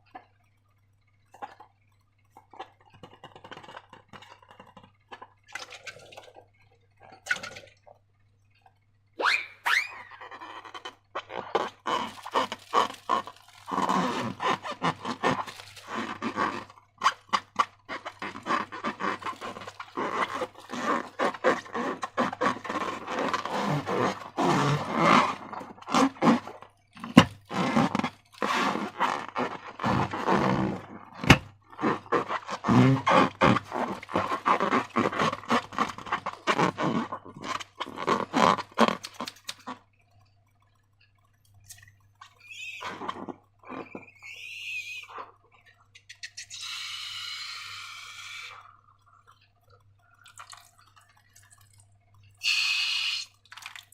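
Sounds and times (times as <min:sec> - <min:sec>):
slime squelching and crackling: 0:10.1 - 0:39.9, 0:41.3 - 0:46.0, 0:47.3 - 0:53.9.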